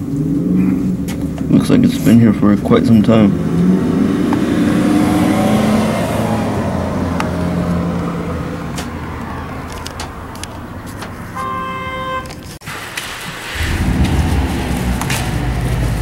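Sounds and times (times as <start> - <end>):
vehicle engine passing: 0.0 - 11.4, 13.2 - 16.0
vehicle horn: 11.3 - 12.4.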